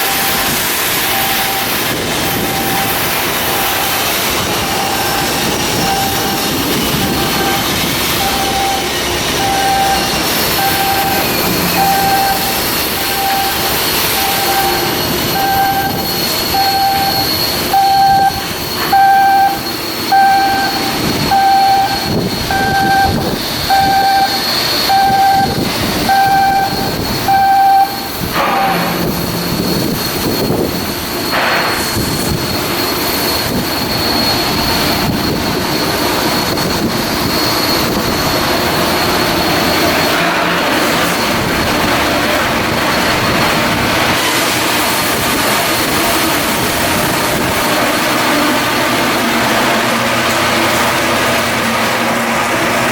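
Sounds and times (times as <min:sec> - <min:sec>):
electronic warning beep: 0:00.0 - 0:47.8
steady machinery noise: 0:00.0 - 0:52.9.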